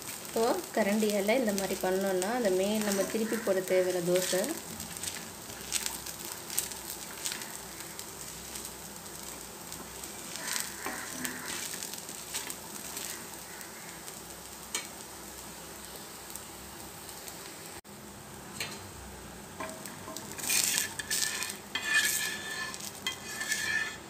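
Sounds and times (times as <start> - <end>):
batter sizzling on griddle: 0.0 - 24.0
metal spatula scraping and tapping: 10.8 - 12.5, 18.6 - 18.9, 19.6 - 24.0.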